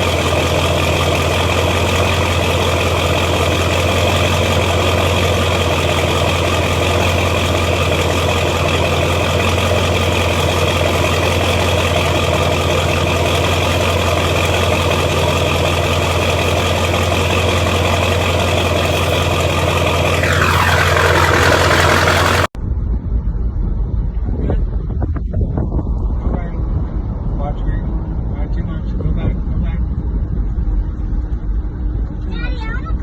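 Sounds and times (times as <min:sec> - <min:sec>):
truck engine running: 0:00.0 - 0:22.6
whine sliding down in pitch: 0:20.0 - 0:22.6.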